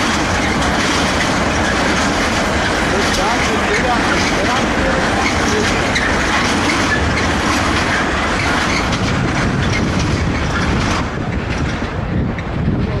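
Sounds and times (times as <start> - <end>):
freight train wheels clattering: 0.0 - 13.0.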